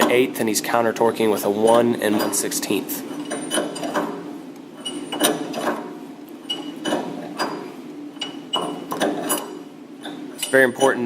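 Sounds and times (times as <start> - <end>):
wrenches clinking on metal nut: 8.2 - 11.0.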